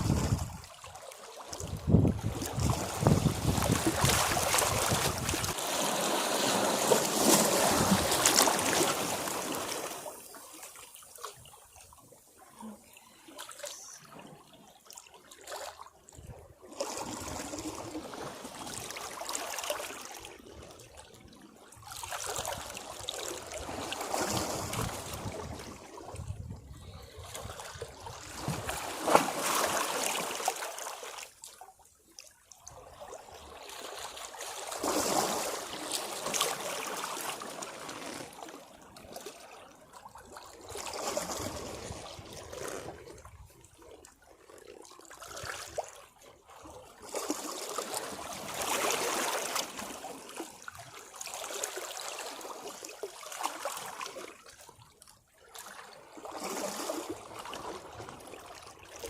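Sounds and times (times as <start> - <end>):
sea waves washing against rocks: 1.6 - 10.3.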